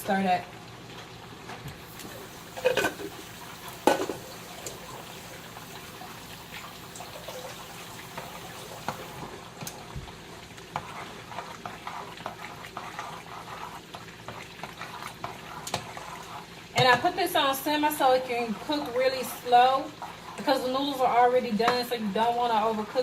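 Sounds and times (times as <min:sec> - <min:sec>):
chicken sizzling in a pan: 0:01.8 - 0:21.4.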